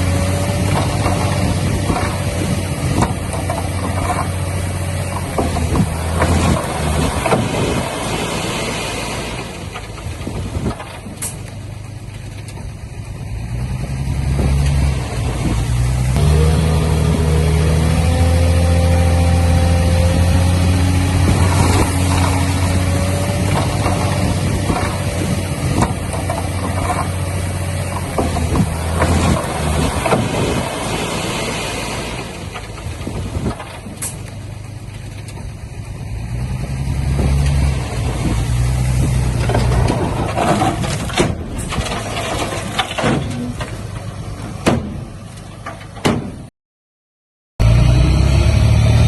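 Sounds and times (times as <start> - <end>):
heavy machinery diesel engines: 0.0 - 46.5, 47.6 - 49.0
knocks and clanks: 0.5 - 7.9, 9.6 - 11.6, 21.2 - 30.9, 32.4 - 35.6, 37.1 - 46.5.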